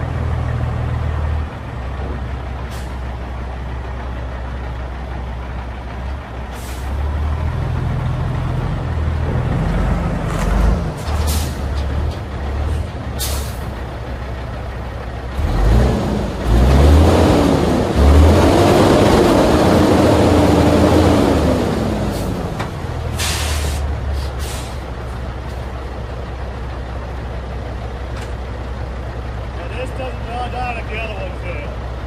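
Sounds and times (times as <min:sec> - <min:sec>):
truck diesel engine revving: 0:00.0 - 0:32.0
air hiss bursts: 0:23.2 - 0:24.8.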